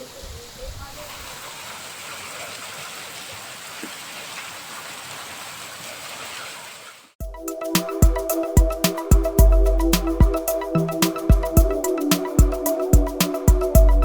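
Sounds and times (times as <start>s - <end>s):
rain falling: 0.0s - 7.1s
music with steady beat: 7.2s - 14.0s.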